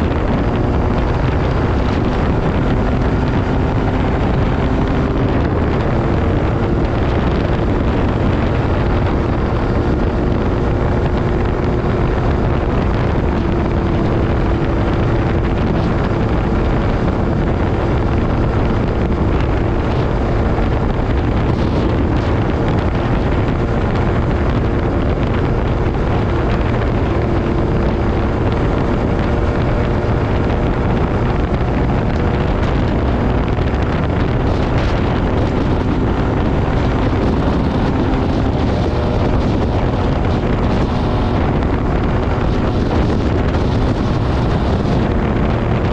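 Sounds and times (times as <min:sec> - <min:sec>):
motorcycle engine cruising: 0:00.0 - 0:45.9
wind rushing over microphone: 0:00.0 - 0:45.9.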